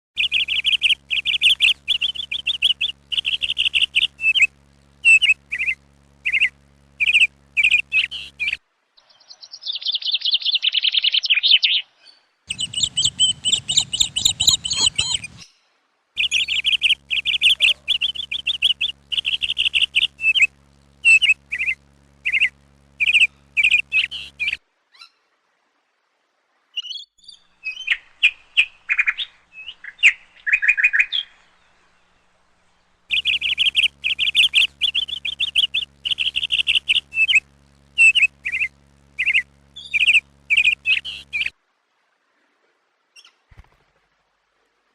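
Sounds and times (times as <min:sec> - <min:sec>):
parrots chirping: 0:00.2 - 0:08.6, 0:12.5 - 0:15.4, 0:16.2 - 0:24.6, 0:33.1 - 0:37.4, 0:38.0 - 0:41.5.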